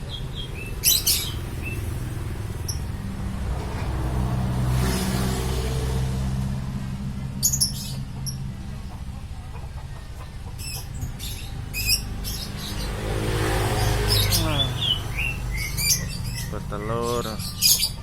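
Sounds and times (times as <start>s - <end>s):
small birds chirping: 0.0s - 3.2s, 7.3s - 18.0s
vehicle engine running: 0.0s - 18.0s.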